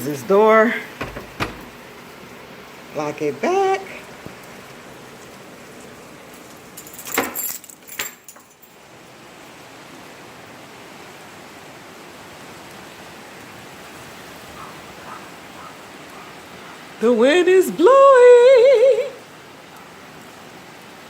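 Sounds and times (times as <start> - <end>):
steady rain: 0.0 - 21.0
lock and keys clicking: 6.8 - 8.7.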